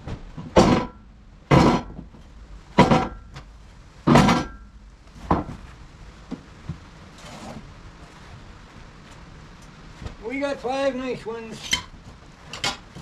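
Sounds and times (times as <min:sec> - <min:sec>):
wooden boards knocking: 0:00.4 - 0:02.1, 0:02.8 - 0:03.2, 0:04.1 - 0:04.6.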